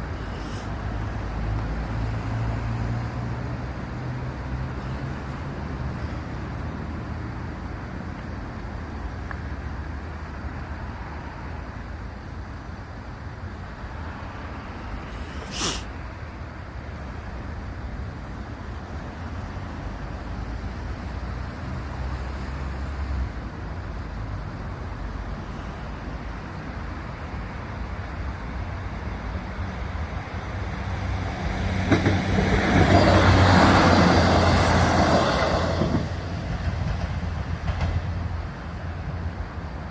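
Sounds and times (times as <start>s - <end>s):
train passing with rushing clatter: 0.0s - 39.9s
vehicle engine rumble: 0.0s - 39.9s
short sharp hiss: 0.2s - 0.8s, 15.1s - 16.0s.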